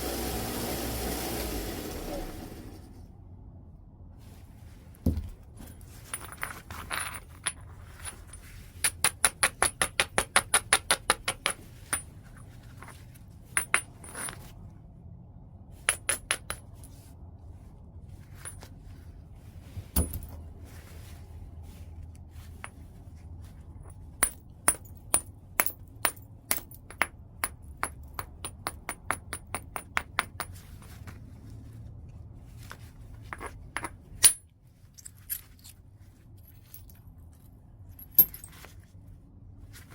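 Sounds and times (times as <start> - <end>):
hard knocks on stone: 5.0 - 5.4.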